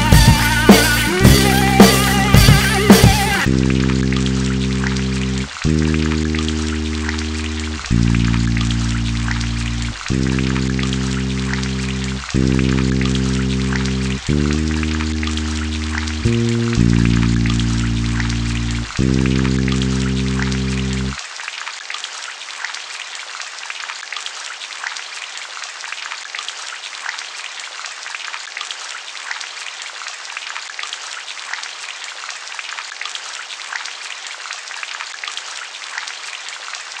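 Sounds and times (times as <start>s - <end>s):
low held music chord: 0.0s - 21.2s
steady rain with ticking drops: 0.0s - 37.0s.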